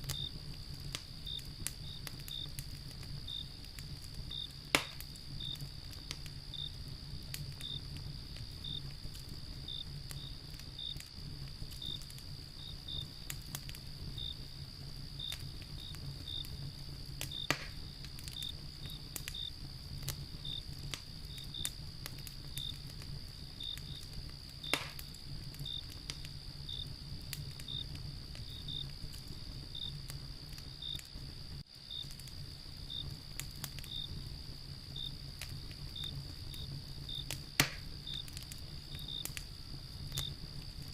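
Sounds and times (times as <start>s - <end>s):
crickets chirping: 0.0s - 40.9s
wood fire crackling and popping: 0.0s - 40.9s.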